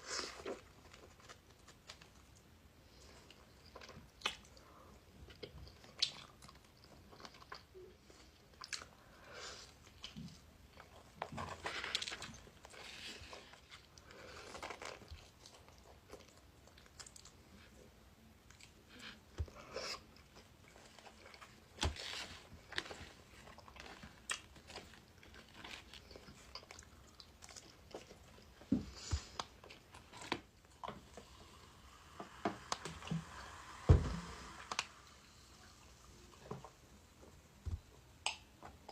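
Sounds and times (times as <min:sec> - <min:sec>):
biting and chewing pizza: 0:18.5 - 0:31.0.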